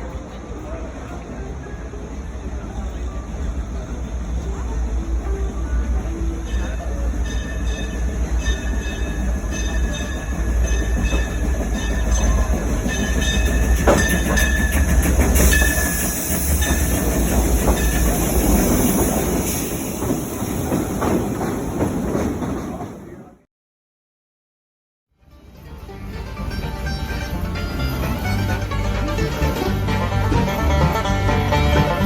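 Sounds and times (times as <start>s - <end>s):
train engine rumble: 0.0s - 23.5s, 25.3s - 32.0s
wheels knocking over rail joints: 6.5s - 19.4s.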